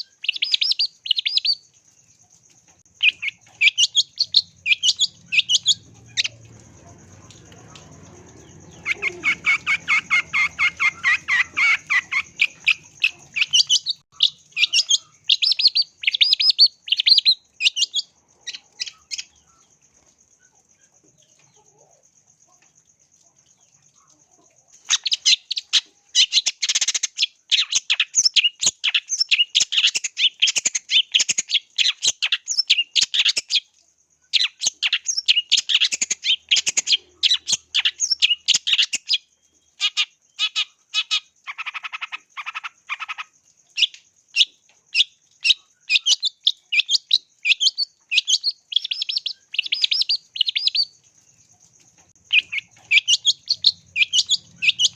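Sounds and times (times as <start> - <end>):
bird singing sharp chattering notes: 2.9 - 19.5, 34.4 - 51.0, 52.1 - 54.9.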